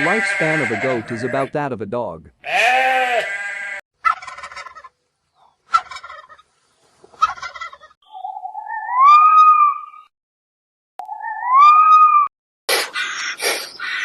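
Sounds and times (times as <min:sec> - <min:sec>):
farm bird rattling calls: 0:04.0 - 0:08.5, 0:12.9 - 0:14.0.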